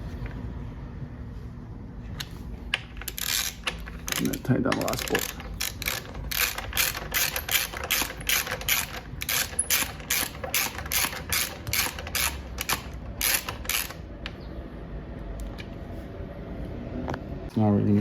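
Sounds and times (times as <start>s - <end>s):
ratcheting wrench clicking: 2.2s - 14.0s.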